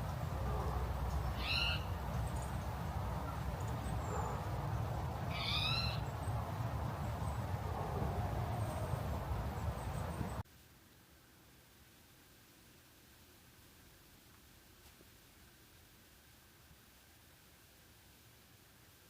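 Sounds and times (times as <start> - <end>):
bird calling: 0.0 - 6.3.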